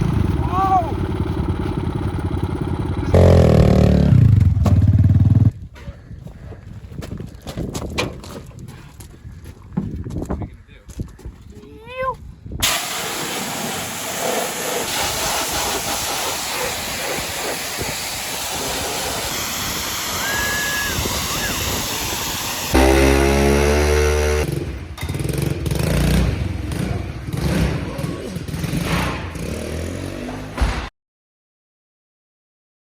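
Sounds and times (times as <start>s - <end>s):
louder engine rising and falling: 0.0s - 5.5s, 17.6s - 30.6s
pit bike engine: 0.0s - 5.6s, 19.2s - 30.6s
wind noise: 5.5s - 13.2s, 14.9s - 22.8s.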